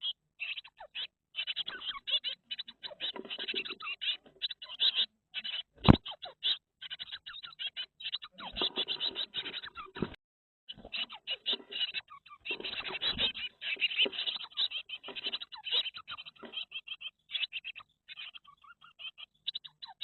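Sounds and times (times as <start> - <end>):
birds chirping rapidly: 0.0 - 20.0
scratching and rustling: 10.9 - 15.4.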